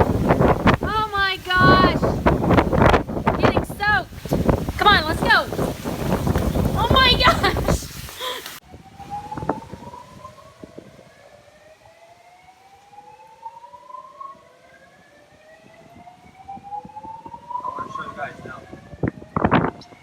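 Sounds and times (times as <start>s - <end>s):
wind knocks on microphone: 0.0s - 8.2s, 9.1s - 11.0s, 16.6s - 20.0s
siren rising sweeps: 8.6s - 20.0s.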